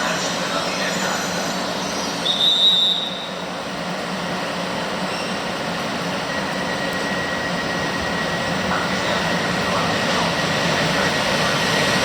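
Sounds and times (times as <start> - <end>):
train rumbling: 0.0 - 12.0
high squeal: 0.1 - 3.5, 5.0 - 5.5.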